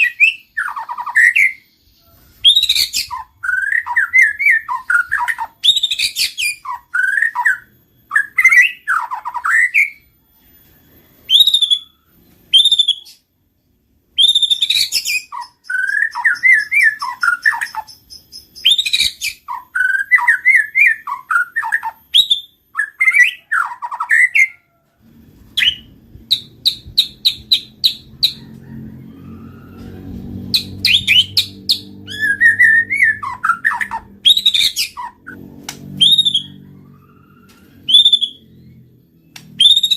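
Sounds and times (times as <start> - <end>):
bird singing whistles and chips: 0.0 - 10.0, 11.3 - 13.2, 14.2 - 24.5, 30.6 - 36.6, 37.5 - 38.5, 39.3 - 39.9
low hum: 24.9 - 39.9.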